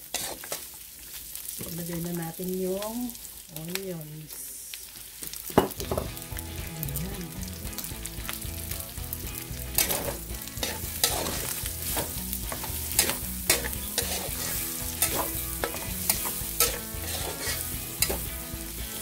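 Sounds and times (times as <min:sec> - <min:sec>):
spatula scraping wok: 0:00.0 - 0:00.8, 0:09.6 - 0:19.0
meat and onions sizzling: 0:00.0 - 0:19.0.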